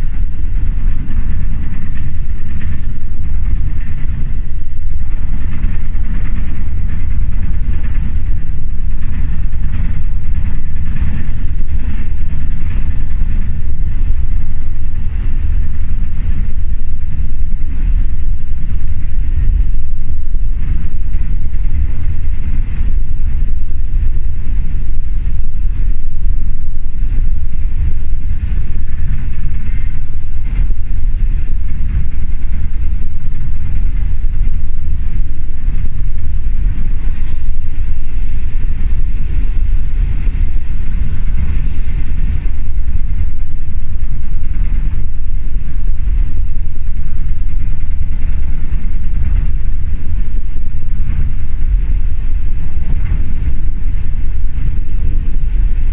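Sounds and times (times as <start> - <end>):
train rumbling: 0.0 - 55.9
high squeak: 37.0 - 37.7.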